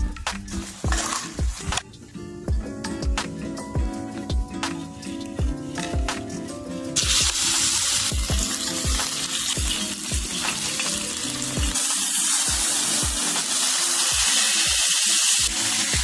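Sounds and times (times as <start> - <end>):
background music with beat: 0.0 - 16.0
steak sizzling: 3.9 - 16.0.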